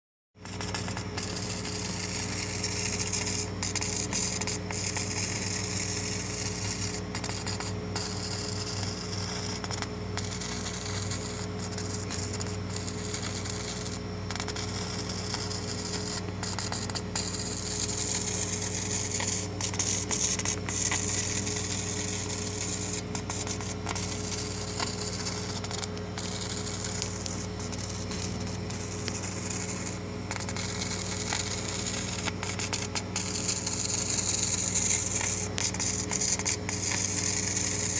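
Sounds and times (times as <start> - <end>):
laser marking machine hum: 0.4 - 37.9.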